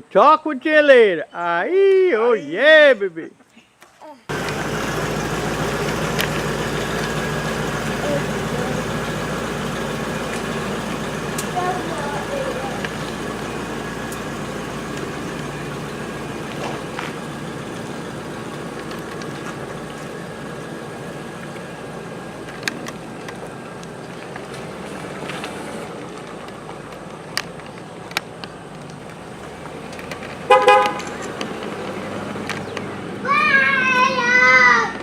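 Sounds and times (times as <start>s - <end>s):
vehicle horn toot: 30.4s - 31.2s.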